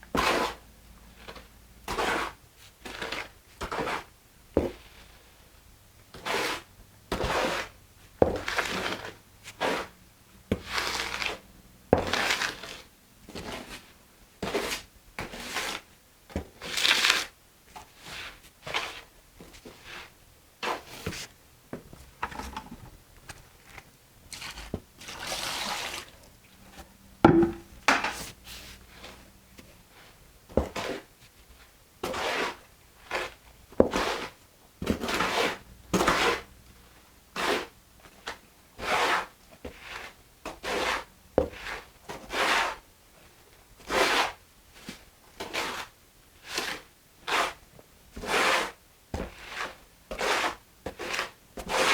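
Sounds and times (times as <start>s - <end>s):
mortar scraping and sloshing: 24.3s - 26.3s.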